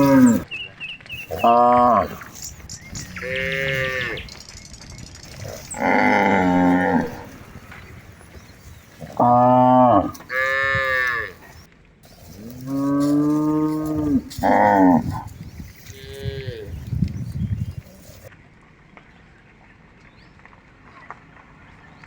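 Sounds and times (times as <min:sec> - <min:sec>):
cattle mooing: 0:00.0 - 0:00.4, 0:01.3 - 0:02.4, 0:03.0 - 0:04.3, 0:05.3 - 0:08.0, 0:09.0 - 0:17.0.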